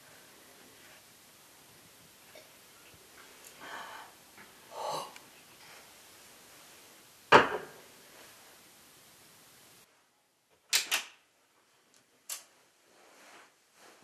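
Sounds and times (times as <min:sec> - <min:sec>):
duvet rustling: 0:12.5 - 0:14.0.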